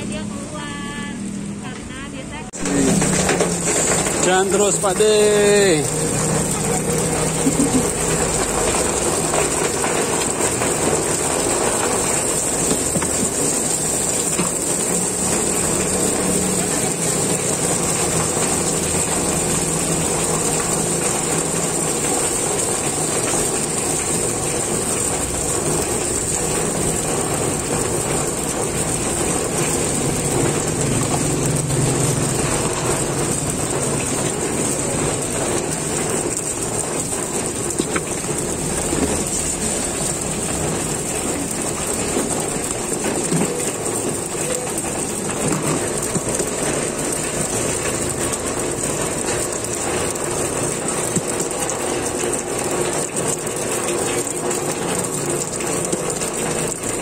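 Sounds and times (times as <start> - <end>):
low street traffic rumble: 0.0 - 57.0
batter sizzling on griddle: 1.9 - 57.0.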